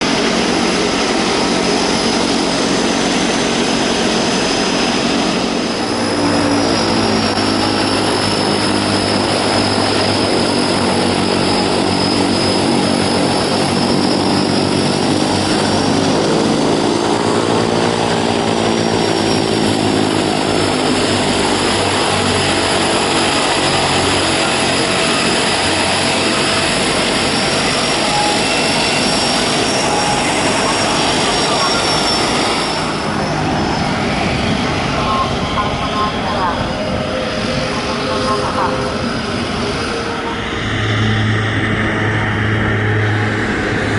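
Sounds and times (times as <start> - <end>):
turboprop engines droning: 0.0 - 43.9.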